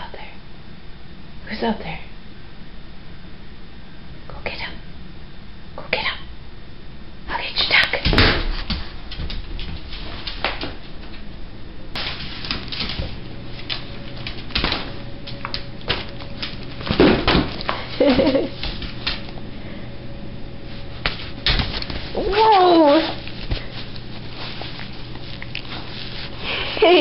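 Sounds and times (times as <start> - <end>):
pet paws clicking on hard floor: 7.8 - 11.3, 12.0 - 19.4, 20.7 - 27.0.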